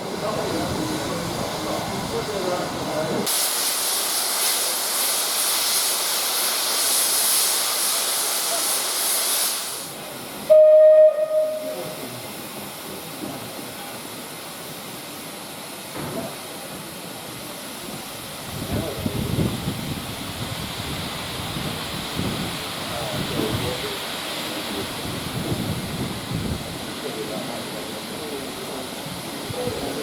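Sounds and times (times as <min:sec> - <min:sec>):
steam locomotive hissing: 0:00.0 - 0:30.0
steam whistle blast: 0:10.5 - 0:12.1.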